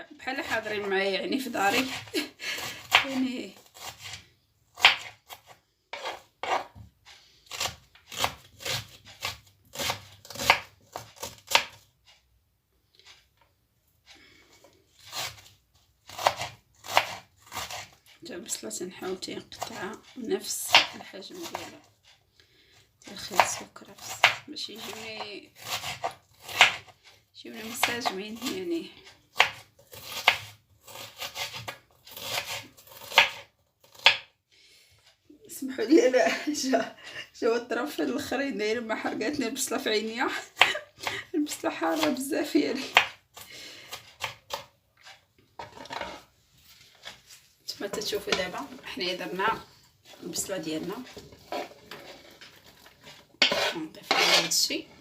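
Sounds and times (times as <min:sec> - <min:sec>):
knife scraping strokes: 0:00.6 - 0:11.9, 0:14.6 - 0:18.2, 0:42.9 - 0:54.8
knife chopping on cutting board: 0:02.8 - 0:03.1, 0:04.8 - 0:06.8, 0:07.5 - 0:11.8, 0:16.1 - 0:17.9, 0:20.7 - 0:21.6, 0:23.4 - 0:25.0, 0:25.6 - 0:26.9, 0:29.4 - 0:34.3, 0:41.9 - 0:42.2, 0:53.4 - 0:54.5.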